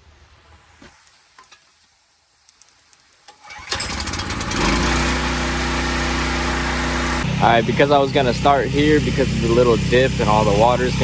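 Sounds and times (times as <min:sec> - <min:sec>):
pressure washer engine running: 0:03.6 - 0:11.0.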